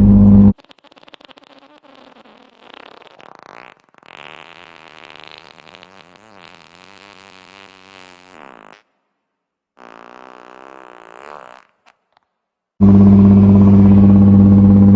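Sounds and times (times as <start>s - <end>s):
car exhaust note: 0.0s - 0.5s, 12.8s - 14.9s.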